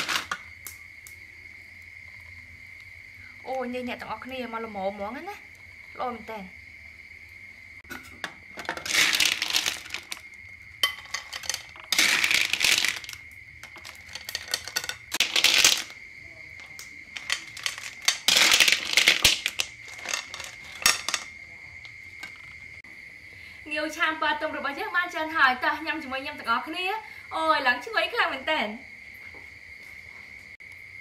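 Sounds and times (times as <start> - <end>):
insect trill: 0.0 - 31.0
shells clattering onto a plate: 10.8 - 16.0, 16.6 - 21.3.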